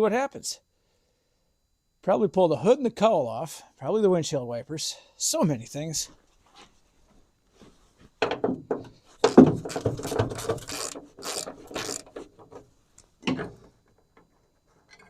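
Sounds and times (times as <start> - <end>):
socket ratchet clicking: 9.7 - 12.1.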